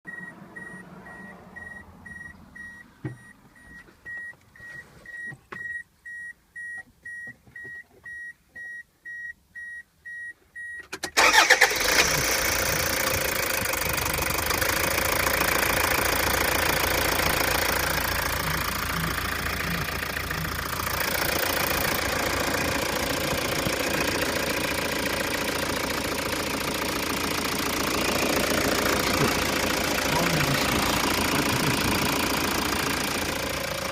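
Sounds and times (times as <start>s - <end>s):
diesel engine idling: 11.2s - 33.9s.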